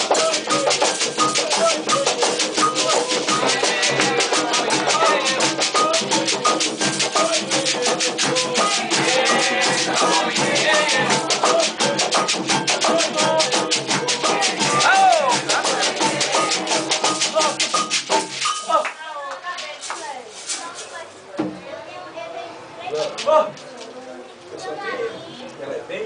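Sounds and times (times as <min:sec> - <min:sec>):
voices singing a chant: 0:00.0 - 0:18.0
drums: 0:00.0 - 0:18.8
shaker rattles: 0:00.0 - 0:21.2.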